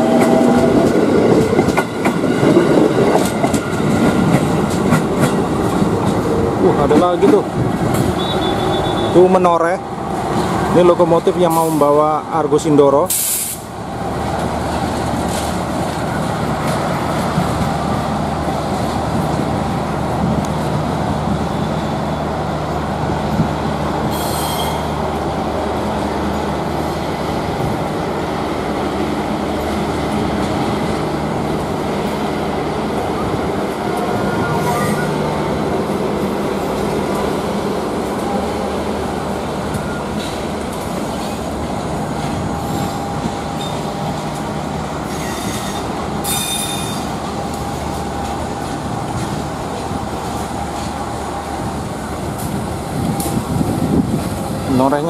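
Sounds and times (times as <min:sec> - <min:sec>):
diesel locomotive running: 0:00.0 - 0:55.0
train wheels rolling on rails: 0:00.0 - 0:55.0
brief high squeals: 0:45.1 - 0:47.1.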